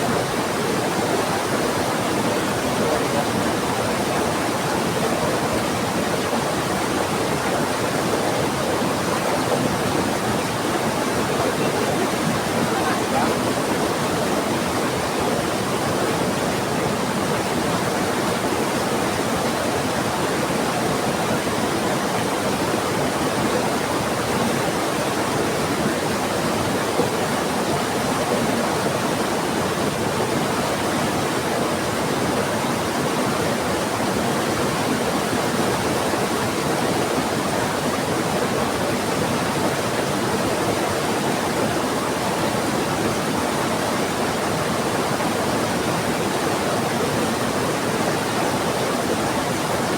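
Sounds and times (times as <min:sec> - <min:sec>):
fast-flowing river rushing: 0:00.0 - 0:49.9
heavy rain: 0:08.8 - 0:15.0.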